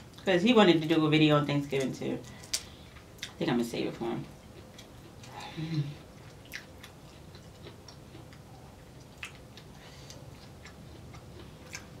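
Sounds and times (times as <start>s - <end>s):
wet mouth clicks and smacks: 6.2s - 12.0s.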